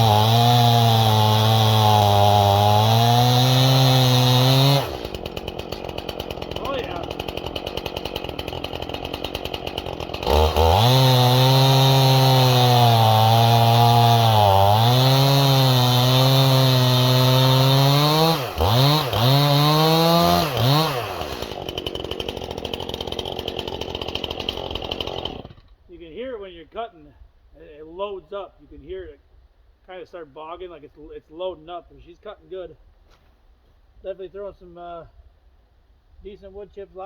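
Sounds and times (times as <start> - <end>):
chainsaw cutting through log: 0.0 - 25.8
chainsaw idling: 0.0 - 25.8
chainsaw throttle blips: 0.0 - 25.8.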